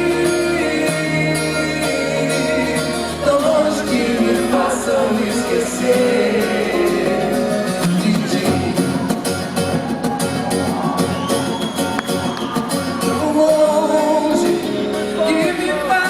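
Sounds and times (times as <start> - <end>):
person singing wordless vocal: 0.0 - 9.2, 13.0 - 16.0
guitar chords: 0.0 - 16.0
live band music: 0.0 - 16.0.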